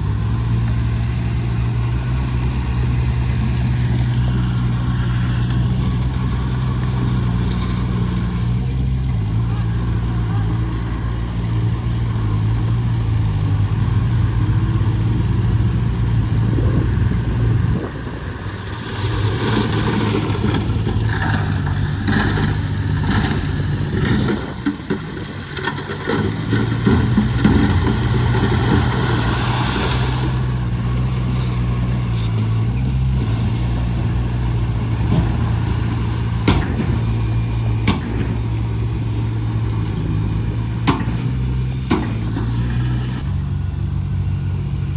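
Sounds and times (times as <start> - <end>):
heavy diesel engine running: 0.0 - 44.9
scraping and rattling: 16.6 - 43.4.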